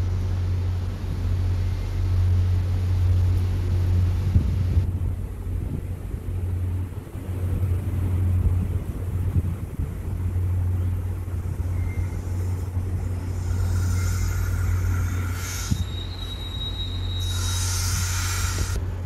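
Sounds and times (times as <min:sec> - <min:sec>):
train rumbling slowly: 0:00.0 - 0:19.0
thin high squeal: 0:11.6 - 0:18.8
hiss: 0:12.0 - 0:18.8.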